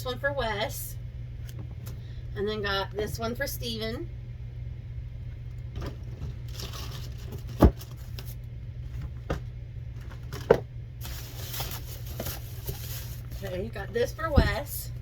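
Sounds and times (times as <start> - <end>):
low hum: 0.0 - 15.0
packaging rustling: 6.4 - 8.4, 10.0 - 13.7.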